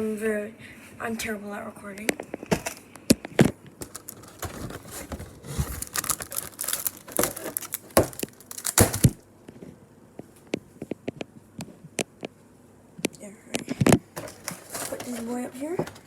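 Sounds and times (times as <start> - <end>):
snack packaging crinkling: 2.4 - 9.2, 14.2 - 15.4.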